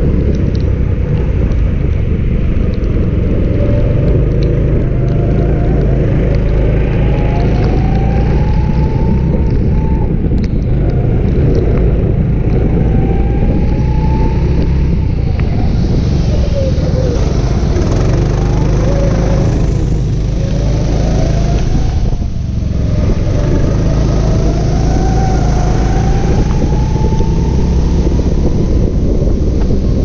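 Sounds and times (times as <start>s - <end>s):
steady rushing noise: 0.0s - 30.0s
go-kart engine accelerating: 16.3s - 30.0s.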